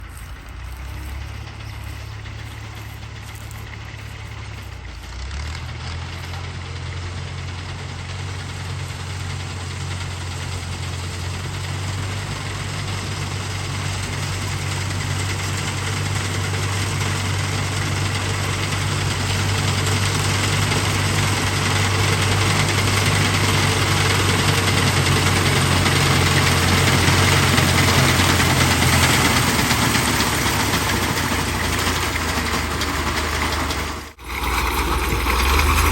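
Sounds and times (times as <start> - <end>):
tractor diesel engine running: 0.0 - 35.9
reaper machinery rushing: 17.2 - 35.9.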